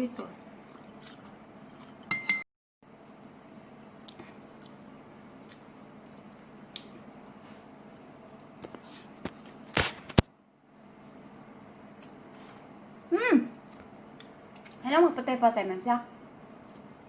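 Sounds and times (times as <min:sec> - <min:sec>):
wet chewing: 0:04.0 - 0:07.8.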